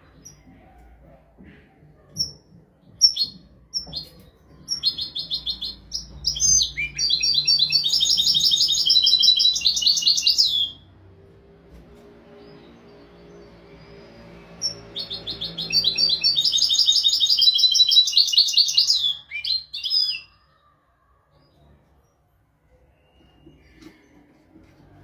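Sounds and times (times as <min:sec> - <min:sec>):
goldfinch singing: 0:13.8 - 0:19.6.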